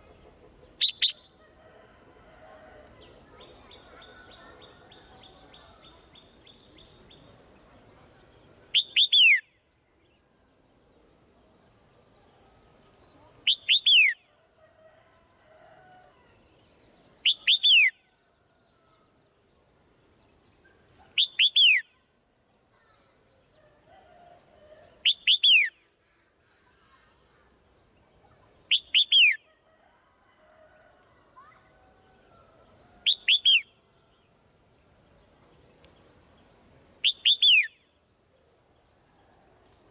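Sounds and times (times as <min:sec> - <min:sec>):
faint high hiss: 0:02.2 - 0:14.2
bird whistled call: 0:08.8 - 0:09.5, 0:21.2 - 0:21.9, 0:25.0 - 0:25.7, 0:28.7 - 0:29.4, 0:33.1 - 0:33.7, 0:37.0 - 0:37.8.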